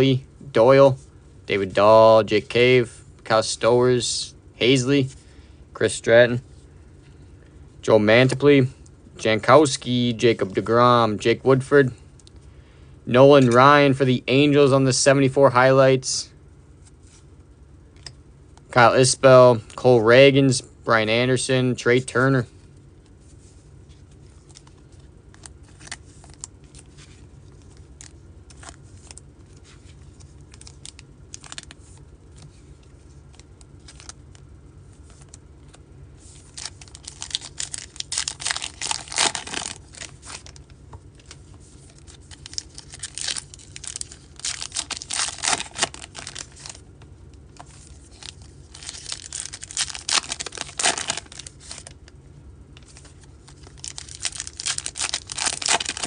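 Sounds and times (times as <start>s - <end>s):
card pack wrappers tearing: 30.5s - 32.0s, 36.3s - 46.8s, 47.5s - 52.0s, 52.8s - 56.0s.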